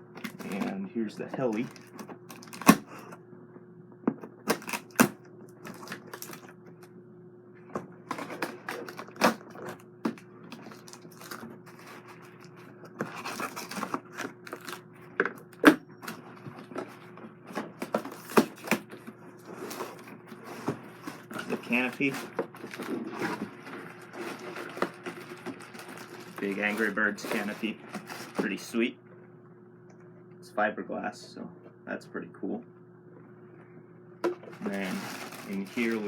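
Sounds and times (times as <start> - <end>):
faint steady hum: 0.0 - 36.0
packaging rustling: 1.4 - 3.0, 4.4 - 6.5, 8.1 - 28.7, 34.3 - 36.0.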